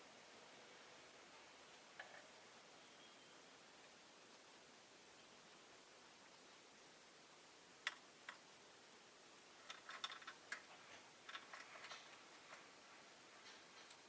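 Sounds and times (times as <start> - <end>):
faint steady hiss: 0.0 - 14.0
small sharp clicks: 7.8 - 8.4.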